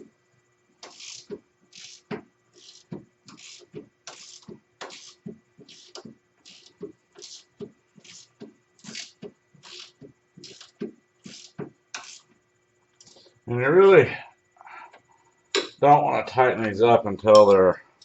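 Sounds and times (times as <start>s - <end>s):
ratchet wrench clicking: 0.8s - 8.3s, 8.9s - 12.2s.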